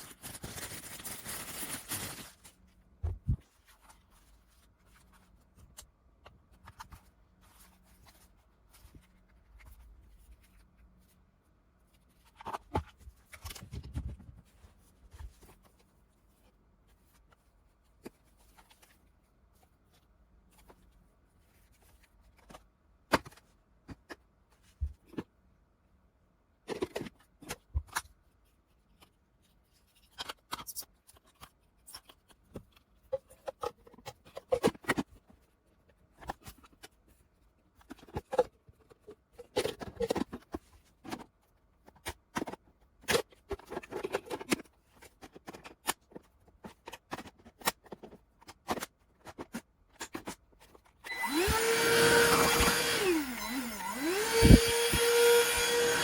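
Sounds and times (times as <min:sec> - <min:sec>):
handheld vacuum whining: 0:51.0 - 0:56.0.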